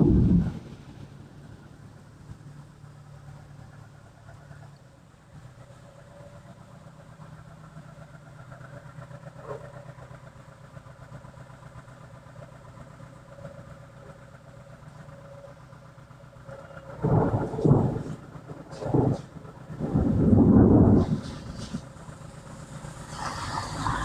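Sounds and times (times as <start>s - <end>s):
loud rumble: 0.0s - 1.7s, 16.6s - 23.8s
steady low hum: 0.0s - 4.7s.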